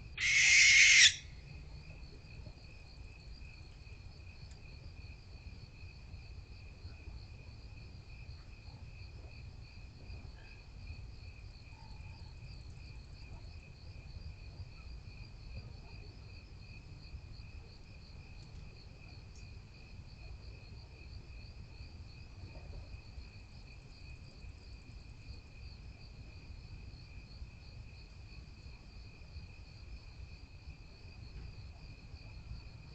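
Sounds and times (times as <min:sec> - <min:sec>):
crickets trilling: 0:00.0 - 0:01.9.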